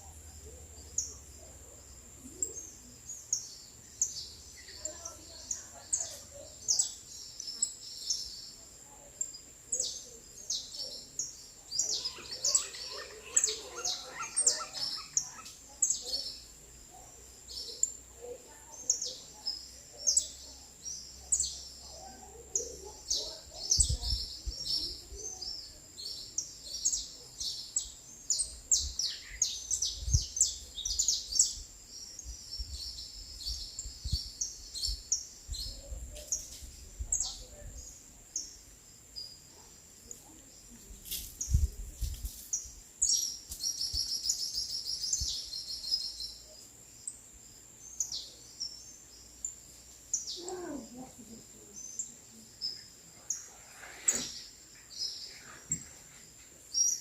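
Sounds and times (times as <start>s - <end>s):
small songbirds chirping: 0.0s - 57.0s
thin steady high tone: 11.6s - 16.3s.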